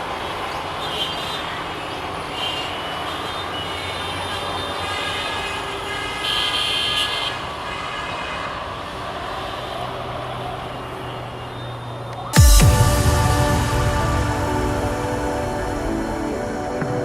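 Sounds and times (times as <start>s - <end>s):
loud hit with falling sweep: 12.4s - 17.0s
music: 12.4s - 17.0s
passenger train rumbling by: 12.4s - 17.0s.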